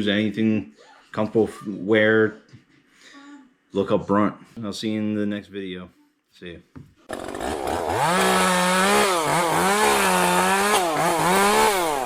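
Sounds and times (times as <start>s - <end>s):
chainsaw engine revving: 7.1s - 12.0s.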